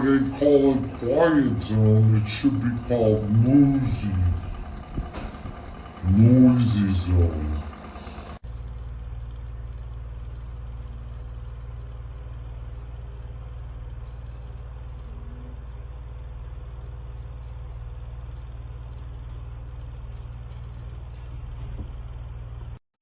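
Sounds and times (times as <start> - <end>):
fan running: 0.0 - 22.8
faint steady hum: 6.0 - 22.8.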